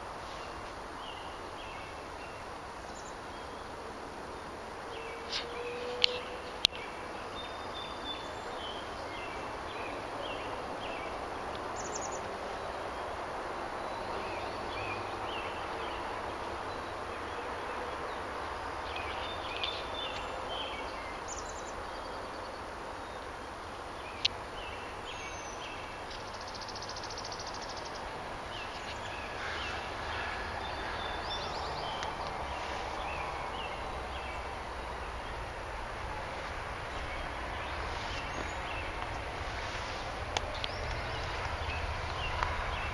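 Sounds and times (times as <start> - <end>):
small birds chirping: 0.0 - 42.9
steady rushing noise: 21.8 - 42.9.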